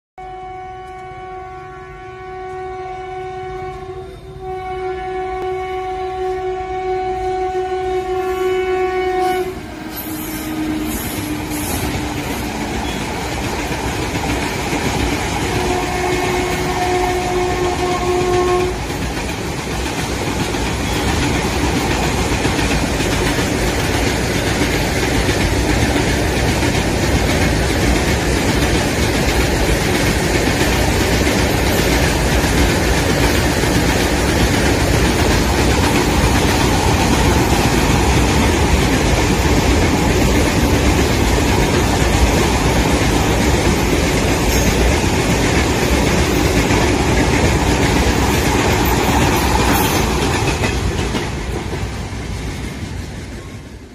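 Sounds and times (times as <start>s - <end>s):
locomotive horn: 0.2s - 13.0s, 15.5s - 18.8s
locomotive engine and wheels rumbling: 5.2s - 53.9s.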